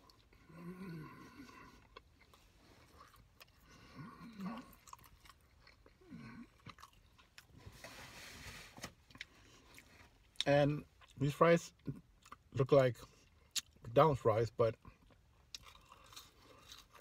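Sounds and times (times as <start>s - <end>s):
chewing food: 0.0s - 7.6s, 14.8s - 17.0s.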